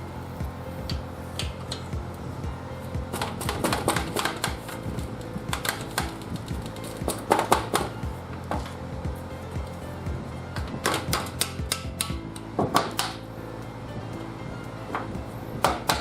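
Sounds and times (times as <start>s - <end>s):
background music: 0.0s - 16.0s
hand tools clicking on metal: 10.6s - 13.2s.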